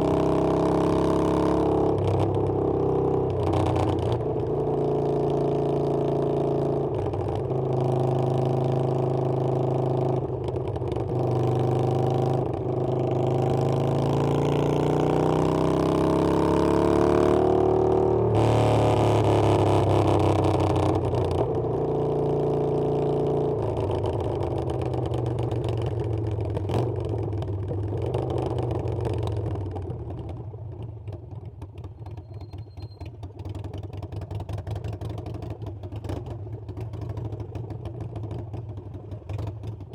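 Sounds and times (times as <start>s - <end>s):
motorcycle engine accelerating: 0.0s - 29.9s.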